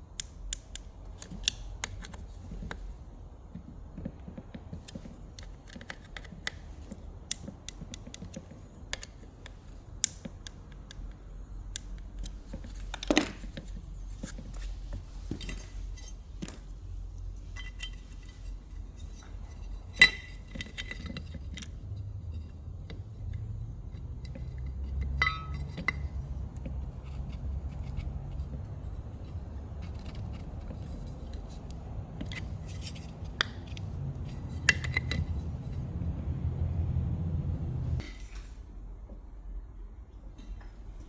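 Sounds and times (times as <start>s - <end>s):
metal parts clicking and clinking: 4.8s - 14.6s, 17.4s - 22.0s, 23.3s - 26.3s
sharp ringing metal clink: 25.2s - 25.6s.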